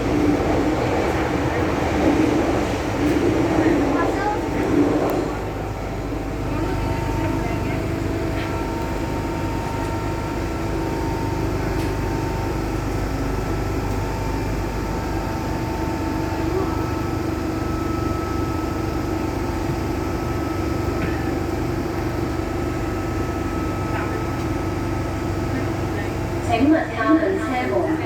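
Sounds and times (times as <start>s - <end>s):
train carriage hum: 0.0s - 28.0s.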